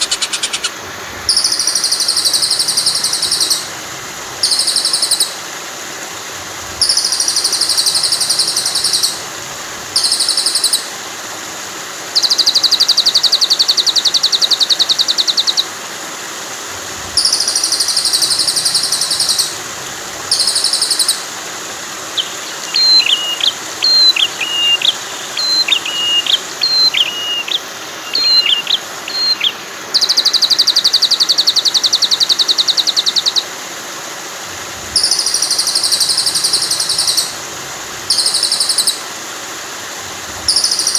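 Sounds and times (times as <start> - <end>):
songbird trills: 0.0 - 3.8, 4.4 - 5.4, 6.8 - 9.2, 10.0 - 10.9, 12.2 - 15.7, 17.2 - 19.6, 20.3 - 21.4, 22.1 - 33.5, 35.0 - 37.4, 38.1 - 39.1, 40.5 - 40.9
flowing water: 0.0 - 40.9.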